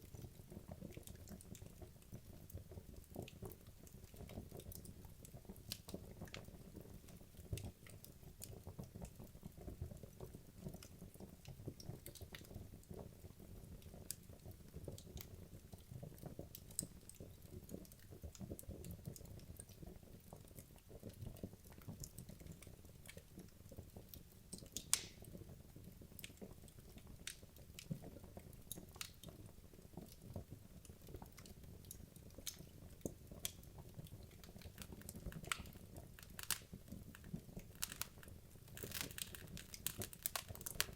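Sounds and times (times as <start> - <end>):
burning logs crackling and popping: 0.0 - 40.9
fire rumbling in fireplace: 30.0 - 40.9.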